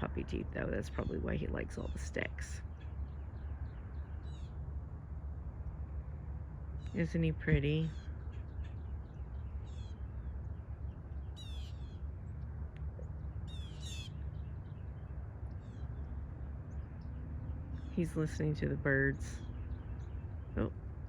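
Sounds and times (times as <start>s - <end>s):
steady low rumble: 0.0s - 21.0s
high bird calls: 7.8s - 12.1s, 13.0s - 18.5s.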